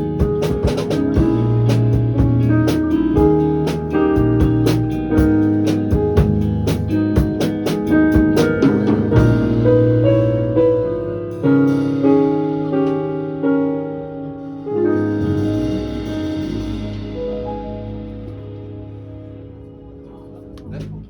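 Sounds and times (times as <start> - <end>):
quick drum beat: 0.0 - 10.0
piano chords: 0.0 - 21.0.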